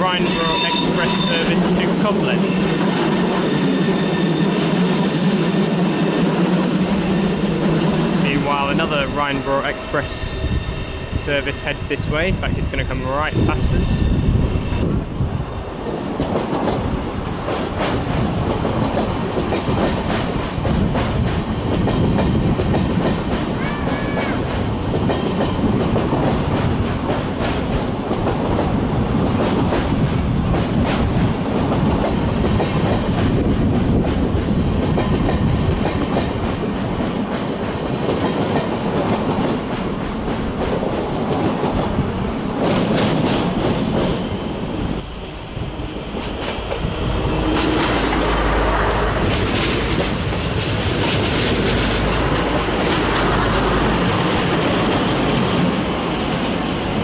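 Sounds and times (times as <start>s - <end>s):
wheel-on-rail noise: 14.6s - 57.0s.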